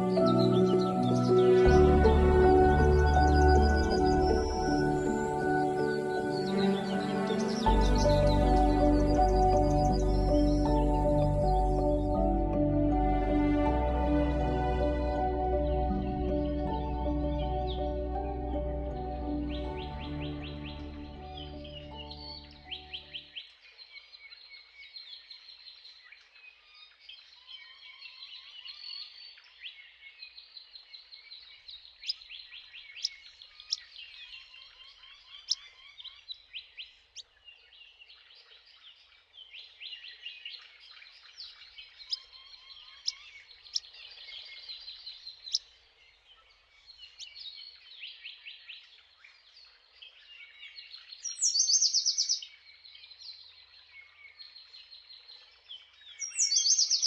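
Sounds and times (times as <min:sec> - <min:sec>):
low repeated bird trill: 0:00.0 - 0:23.6, 0:50.4 - 0:55.4
songbirds chirping and trilling: 0:00.0 - 0:57.0.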